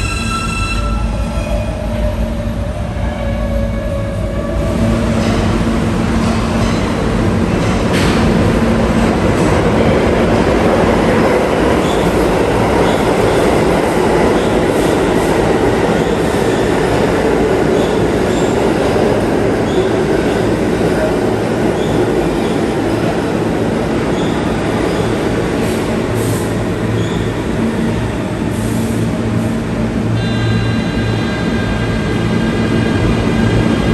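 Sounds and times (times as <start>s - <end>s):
high wheel squeals: 0.0s - 1.8s
train wheels rumbling on rails: 0.0s - 33.9s.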